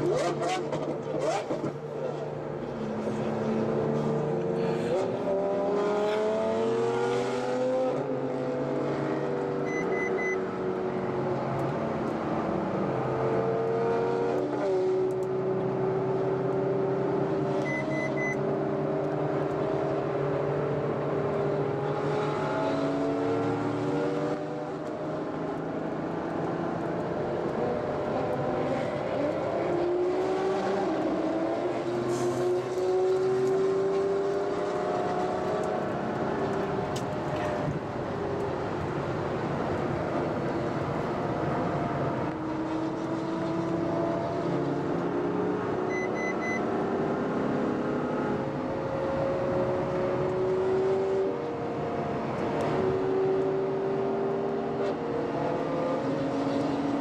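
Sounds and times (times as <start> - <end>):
road noise: 0.0 - 57.0
car engine accelerating: 3.0 - 37.7
short double beeps: 9.7 - 10.4, 17.6 - 18.4, 45.9 - 46.6.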